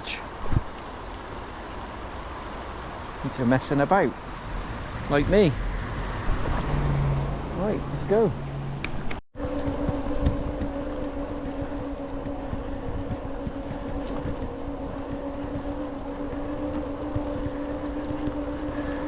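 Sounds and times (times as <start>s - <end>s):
wind: 0.0s - 19.0s
electric motor whine: 9.4s - 19.0s.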